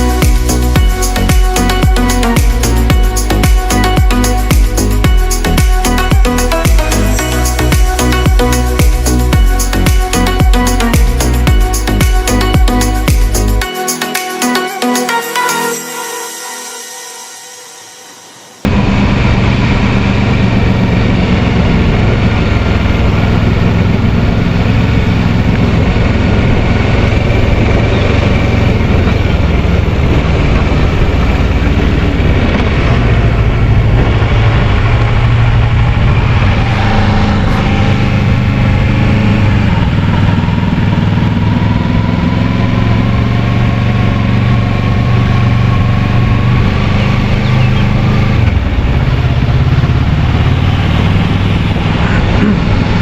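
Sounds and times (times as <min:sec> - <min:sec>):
motorcycle engine running: 0:00.0 - 0:13.7, 0:18.6 - 0:53.0
wind noise: 0:18.7 - 0:42.1.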